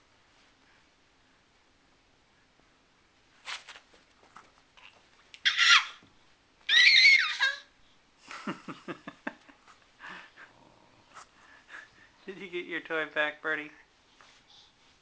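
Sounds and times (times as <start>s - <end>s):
dog squealing: 5.4s - 6.0s, 6.7s - 7.6s
dog growling: 10.4s - 11.1s.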